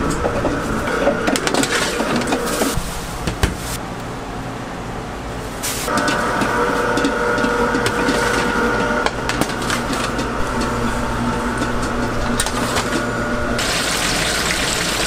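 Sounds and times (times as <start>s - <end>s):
small machine whining: 5.9s - 14.8s.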